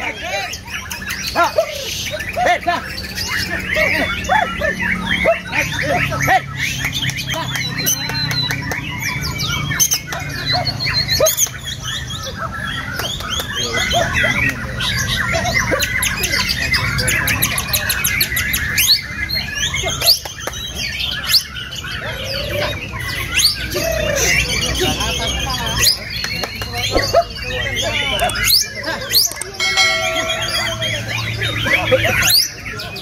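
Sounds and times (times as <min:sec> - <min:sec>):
many birds singing: 0:00.0 - 0:33.0.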